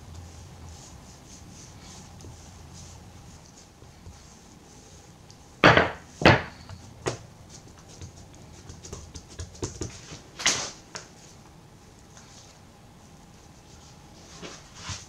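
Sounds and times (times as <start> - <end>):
knocks on kitchen work surface: 5.6 - 6.6.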